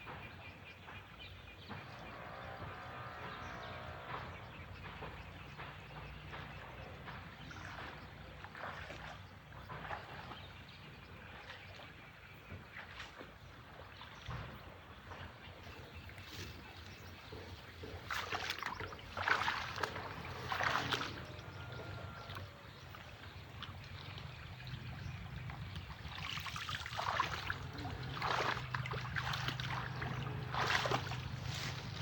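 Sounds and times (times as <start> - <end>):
water splashing: 2.9 - 32.0.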